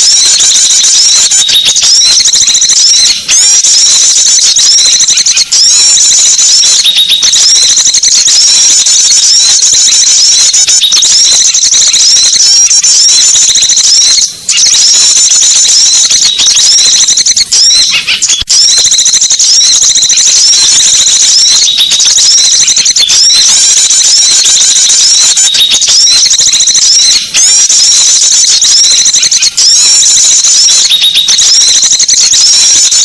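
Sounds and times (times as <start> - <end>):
small birds chirping: 0.0 - 18.5.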